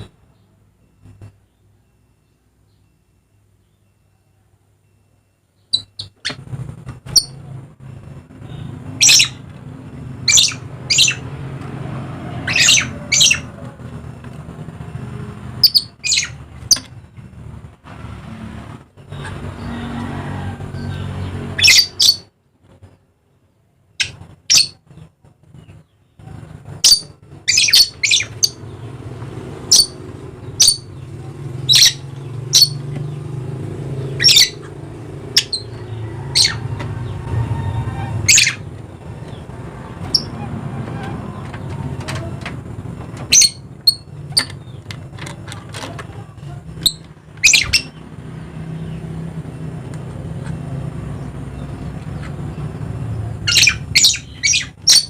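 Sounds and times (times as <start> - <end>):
birds screeching harshly: 5.7 - 17.6, 18.4 - 22.3, 23.9 - 55.0.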